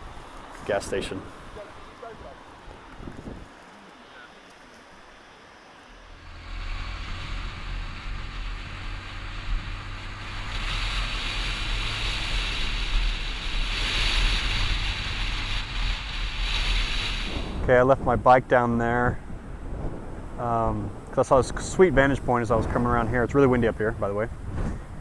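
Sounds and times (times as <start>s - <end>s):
strong wind buffeting microphone: 0.0s - 3.6s, 6.3s - 25.0s.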